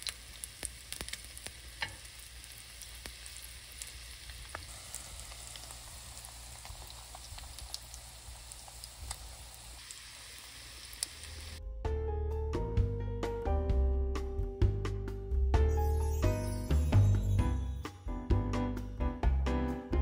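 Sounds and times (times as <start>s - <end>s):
food sizzling in hot oil: 0.0s - 11.6s
oil crackling and popping: 0.0s - 11.6s.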